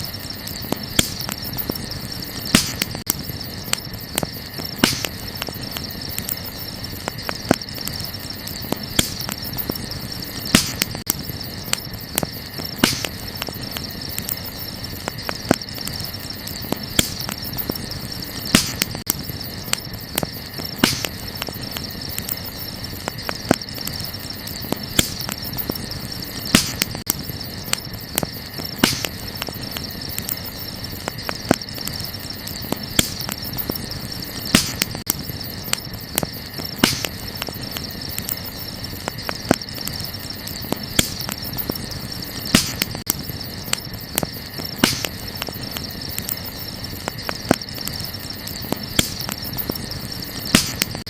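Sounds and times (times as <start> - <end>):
campfire crackling and popping: 0.0 - 51.0
crickets chirring: 0.0 - 51.0.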